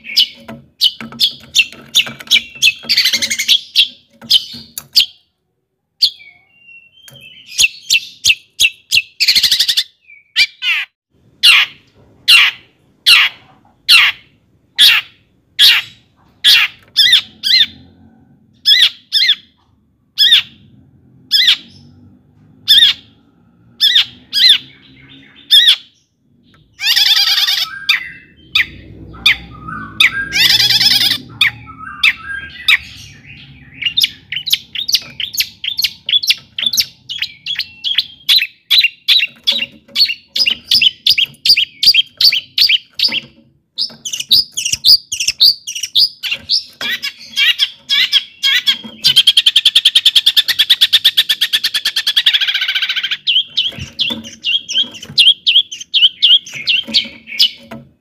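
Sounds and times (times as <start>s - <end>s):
bird rattling trill: 0.0s - 5.0s
bird singing sharp repeated notes: 22.7s - 57.8s.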